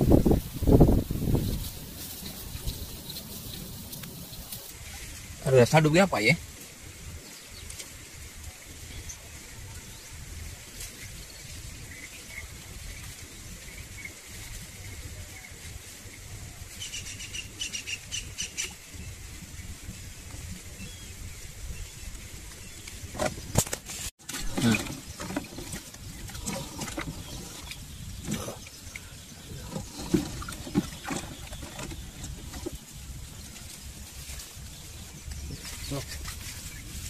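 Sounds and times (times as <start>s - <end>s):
birds chirping: 0.0s - 4.7s, 8.8s - 37.0s
rustling from handling: 0.2s - 5.3s.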